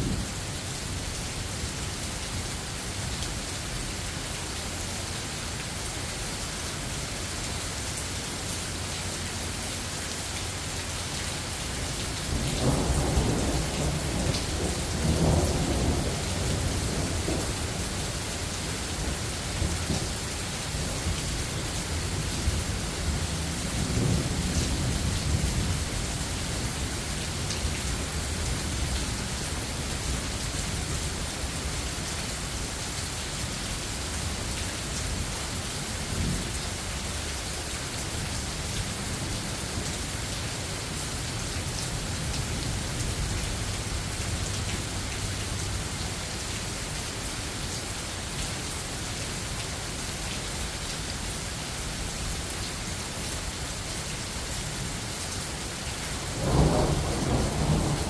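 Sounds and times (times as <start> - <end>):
rain hissing: 4.4 - 58.0
thunder rumbling: 12.2 - 18.1, 56.3 - 58.0.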